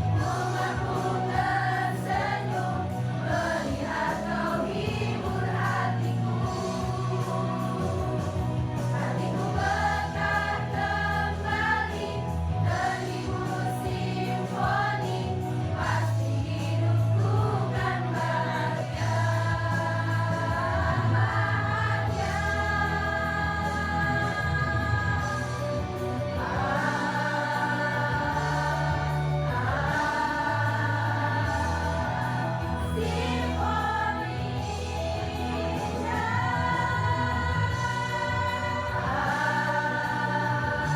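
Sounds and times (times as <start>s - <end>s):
low bass notes: 0.0s - 14.4s, 15.2s - 40.9s
choir singing held notes: 0.0s - 40.9s.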